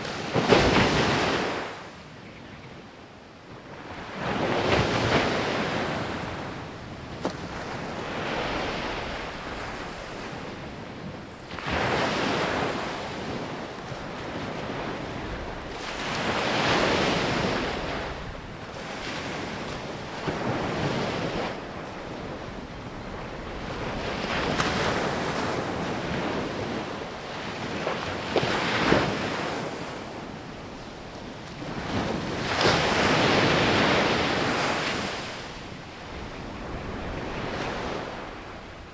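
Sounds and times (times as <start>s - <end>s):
sea waves breaking on beach: 31.6s - 38.9s.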